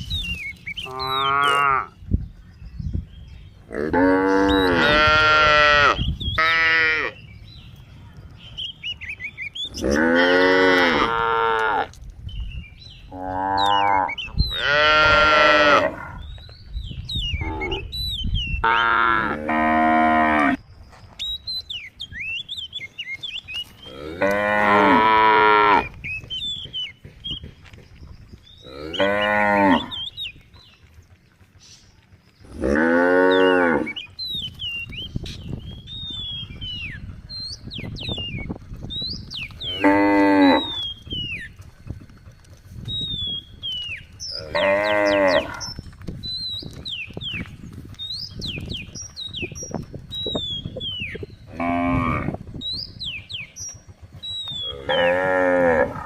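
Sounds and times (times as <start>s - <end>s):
small birds chirping: 0.0s - 56.0s
cows mooing: 0.8s - 2.0s, 3.7s - 7.2s, 9.7s - 12.0s, 13.1s - 16.3s, 17.4s - 17.9s, 18.6s - 20.6s, 23.8s - 26.0s, 28.6s - 30.1s, 32.4s - 34.2s, 39.4s - 41.0s, 44.2s - 45.8s, 51.4s - 52.5s, 54.6s - 56.0s.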